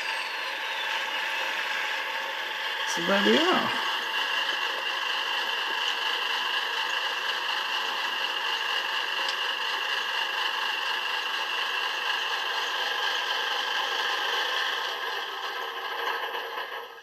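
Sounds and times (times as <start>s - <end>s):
diesel engine running sound from small speaker: 0.0s - 17.0s.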